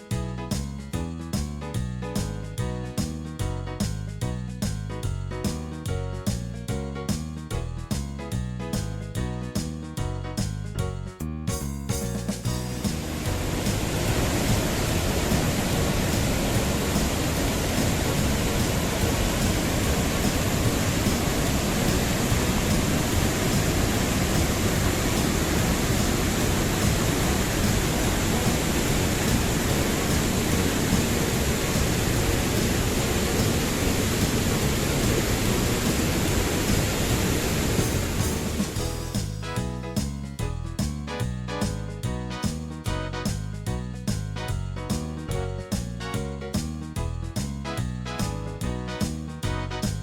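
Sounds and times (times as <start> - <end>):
waterfall rushing: 12.6 - 39.1.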